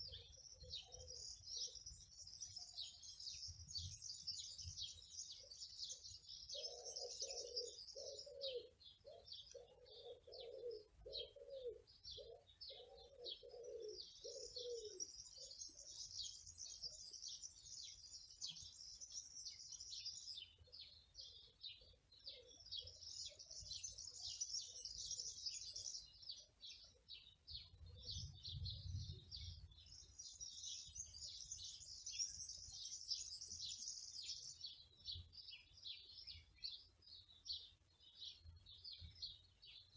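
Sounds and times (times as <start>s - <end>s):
small songbirds chirping: 0.0s - 39.9s
pigeon cooing: 6.5s - 15.1s.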